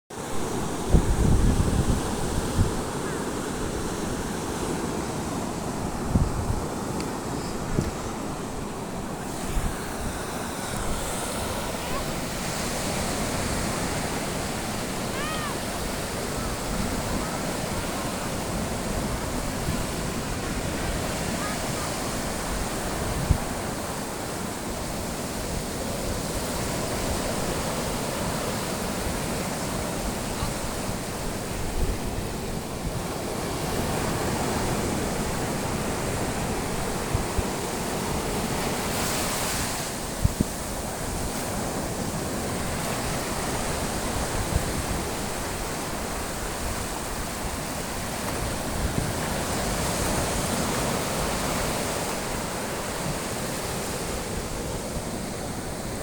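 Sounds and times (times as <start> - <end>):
sea waves washing: 0.1 - 56.0
wind buffeting microphone: 0.2 - 56.0.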